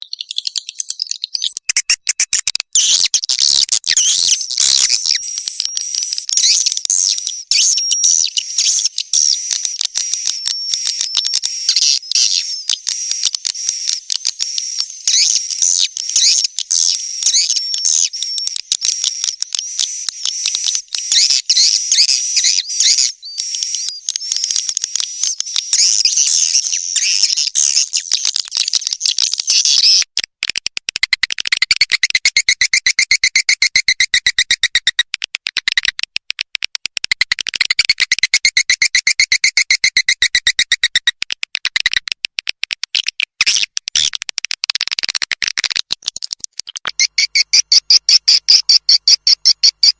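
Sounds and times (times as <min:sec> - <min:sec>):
dense high bird chirping: 0:00.0 - 0:28.2, 0:46.9 - 0:49.9.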